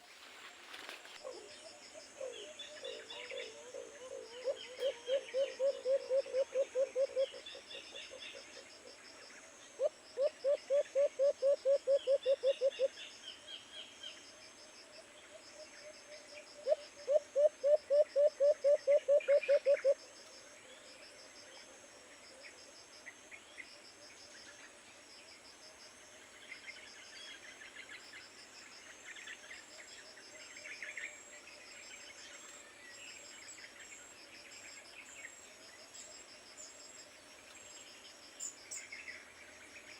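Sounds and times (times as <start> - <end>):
dove cooing: 1.2 - 7.5, 9.8 - 12.9, 16.6 - 20.0.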